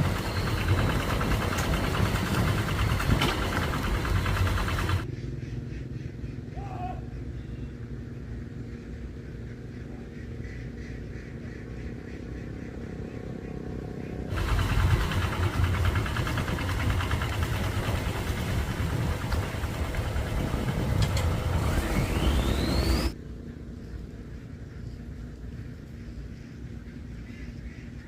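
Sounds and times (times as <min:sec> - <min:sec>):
motor running with whine: 0:00.0 - 0:05.0, 0:14.3 - 0:23.2.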